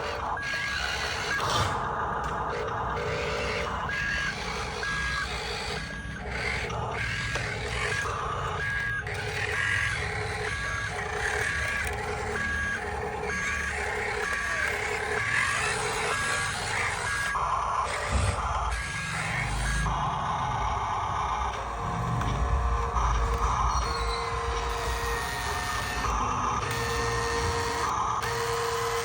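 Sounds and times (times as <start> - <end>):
truck reversing alarm beeping: 0.0 - 29.0
low rumble: 21.4 - 24.9.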